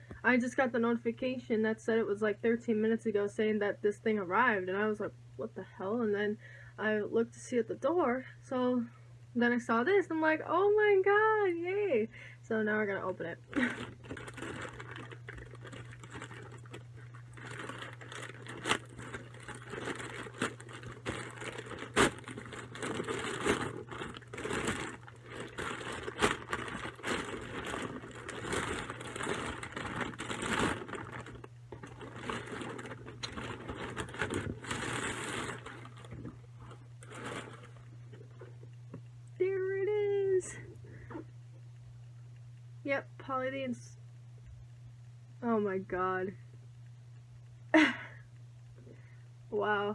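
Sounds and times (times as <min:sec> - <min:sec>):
packaging crinkling and tearing: 0:13.5 - 0:38.5.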